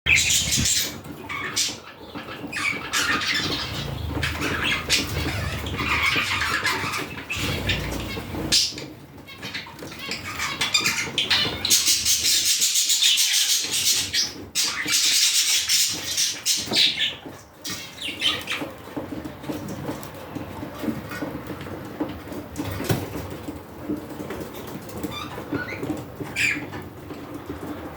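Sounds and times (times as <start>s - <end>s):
budgerigars chattering and chirping: 0.1s - 19.6s, 25.0s - 26.8s
rapid clicking bird calls: 0.1s - 23.0s, 23.8s - 27.9s.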